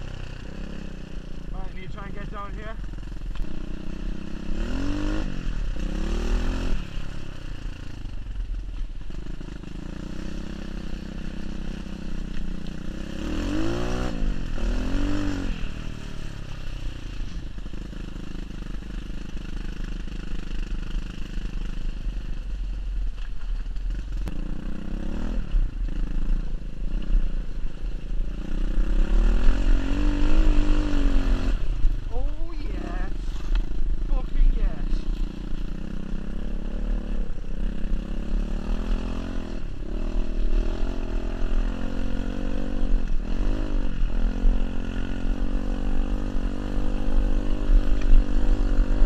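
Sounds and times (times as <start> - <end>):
small motorcycle engine revving: 0.0 - 8.2, 9.0 - 22.4, 23.8 - 49.0.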